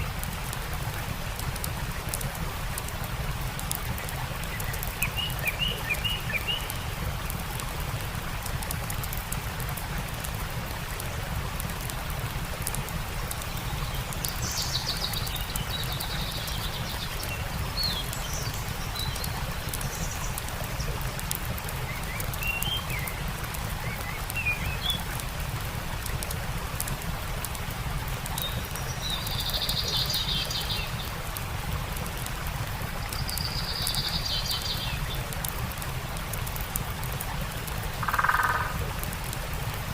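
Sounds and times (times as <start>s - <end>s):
campfire crackling: 0.0s - 39.9s
stream rushing: 0.0s - 39.9s
wild birds calling: 38.0s - 38.8s.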